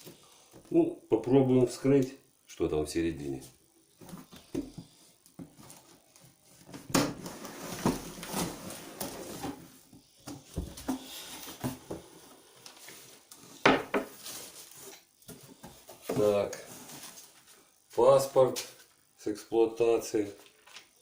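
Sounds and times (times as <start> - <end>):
cardboard box rustling and scraping: 7.2 - 9.9.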